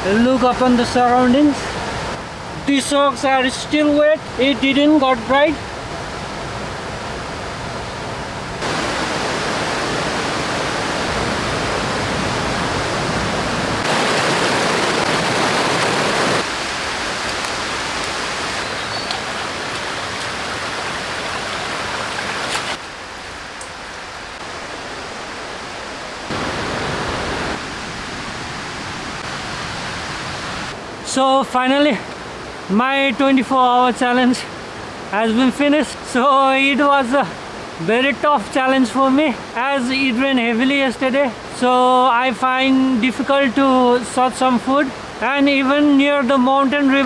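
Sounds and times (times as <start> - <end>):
rushing river water: 0.0 - 47.0.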